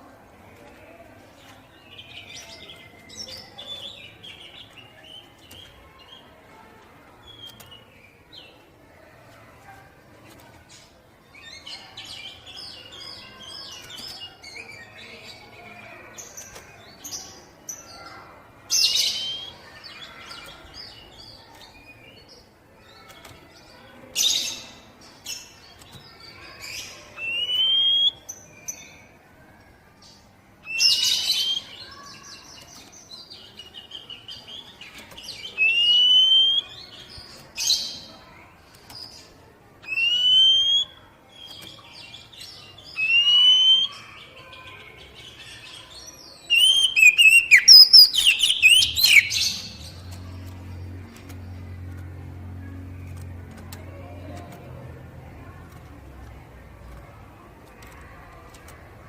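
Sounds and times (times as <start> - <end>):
bird whistling: 27.2 - 28.2, 35.6 - 36.7, 39.9 - 41.0, 43.0 - 44.0, 46.5 - 49.5
harsh rasping bird notes: 46.5 - 50.2.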